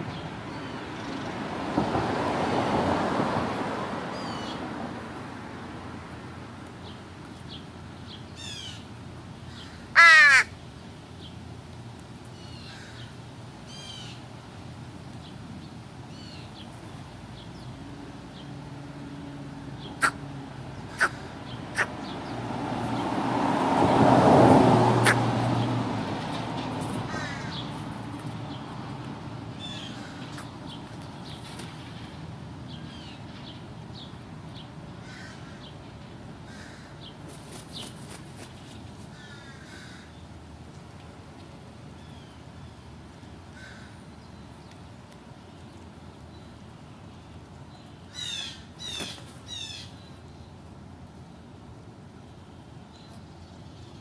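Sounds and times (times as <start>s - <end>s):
vehicle passing: 0.3s - 6.6s, 17.1s - 39.9s
crow cawing: 9.6s - 10.5s, 20.0s - 20.2s, 20.9s - 21.9s, 27.1s - 27.5s, 35.0s - 35.6s, 36.5s - 36.9s, 39.2s - 40.1s, 43.6s - 44.0s.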